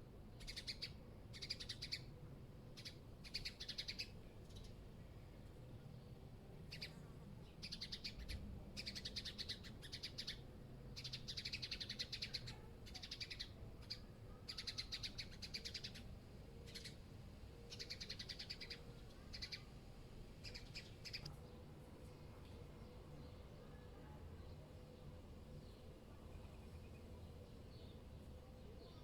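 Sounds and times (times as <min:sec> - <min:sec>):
low city rumble: 0:00.0 - 0:29.0
small bird chattering trills: 0:00.4 - 0:02.1, 0:02.8 - 0:04.7, 0:07.6 - 0:17.0, 0:17.7 - 0:19.8, 0:20.4 - 0:21.3.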